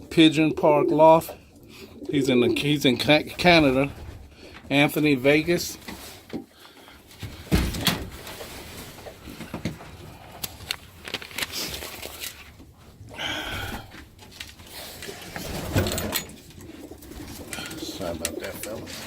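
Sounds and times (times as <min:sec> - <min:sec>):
pigeons scrabbling and rustling: 0:05.4 - 0:19.0.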